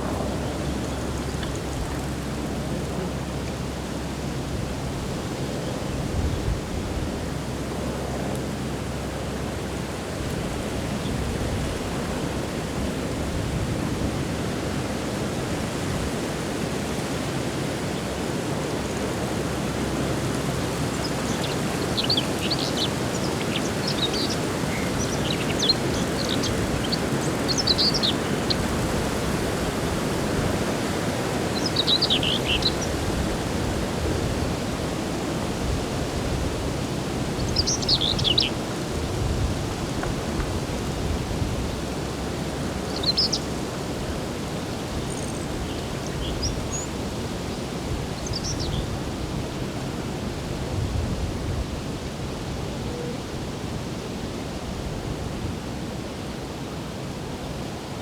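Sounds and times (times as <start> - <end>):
songbirds chirping: 18.8 - 33.5, 36.8 - 49.5.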